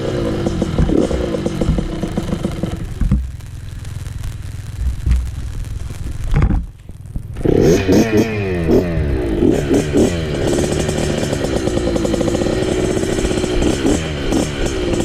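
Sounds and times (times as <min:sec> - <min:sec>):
dirt bike engine revving: 0:00.0 - 0:03.1, 0:07.4 - 0:15.0.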